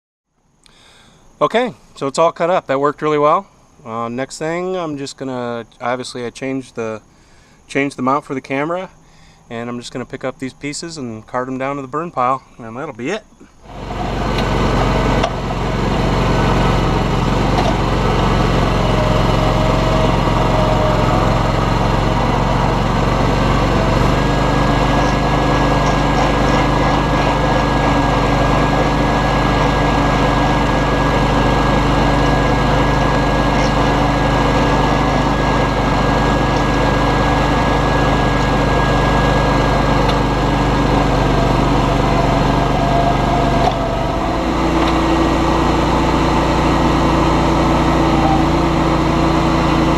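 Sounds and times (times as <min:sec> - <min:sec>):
thin high whine: 0:12.6 - 0:49.9
lawn tractor engine running: 0:13.6 - 0:49.9.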